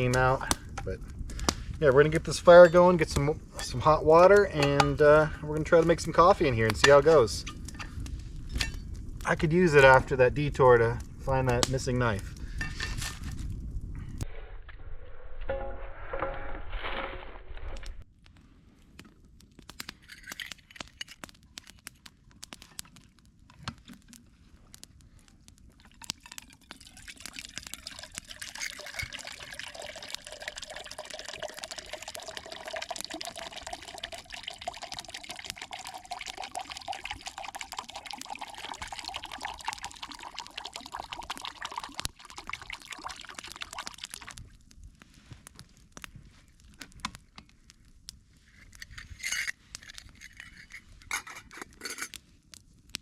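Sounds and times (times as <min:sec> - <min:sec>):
water pouring into container: 0:25.9 - 0:44.4.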